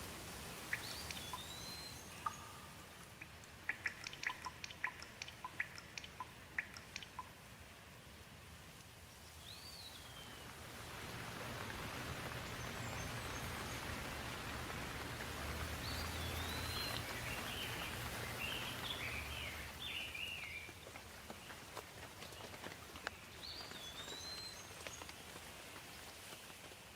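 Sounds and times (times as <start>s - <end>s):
steady rainfall: 0.0s - 26.9s
bird chirps: 0.6s - 7.3s, 15.7s - 20.7s, 23.1s - 25.1s
bird whistled call: 0.7s - 2.7s, 15.8s - 20.6s.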